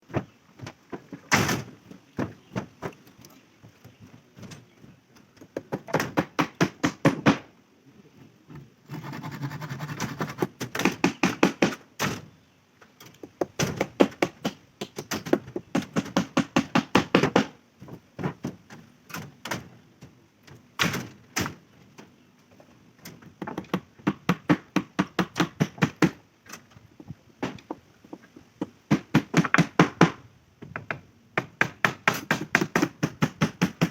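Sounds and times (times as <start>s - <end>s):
rasping scrape: 8.8s - 10.6s
hammer knocking on wood: 13.3s - 17.5s, 28.9s - 33.9s.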